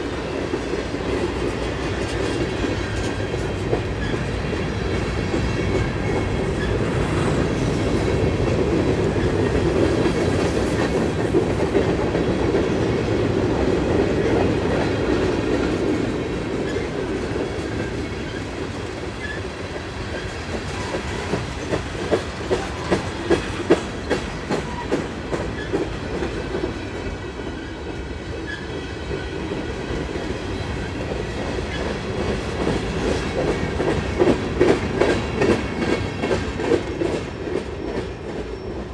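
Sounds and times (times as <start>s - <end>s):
freight train rumbling past: 0.0s - 38.9s
wheels clacking over rail joints: 0.3s - 27.0s.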